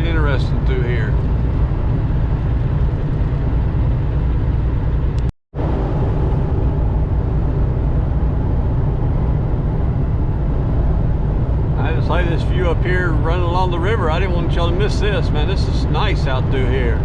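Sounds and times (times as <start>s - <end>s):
road noise: 0.0s - 17.0s
truck engine drone: 0.0s - 17.0s.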